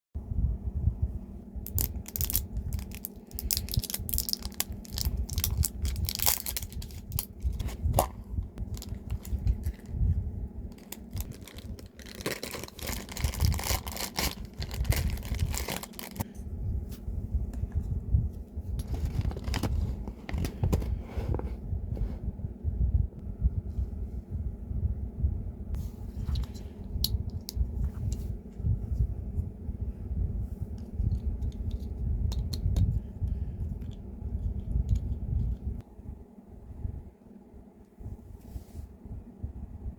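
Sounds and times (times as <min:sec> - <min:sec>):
steady low hum: 0:00.2 - 0:39.9
paper and plastic wrapping tearing: 0:01.7 - 0:07.7, 0:10.8 - 0:16.2.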